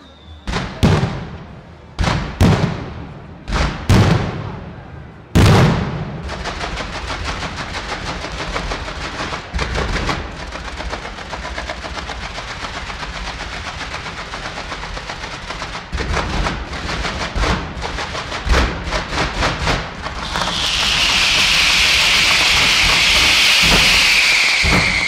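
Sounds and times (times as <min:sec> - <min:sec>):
heavy firework bangs: 0:00.5 - 0:25.0
rapid firework reports: 0:00.5 - 0:25.0
firework shell burst: 0:06.3 - 0:25.0.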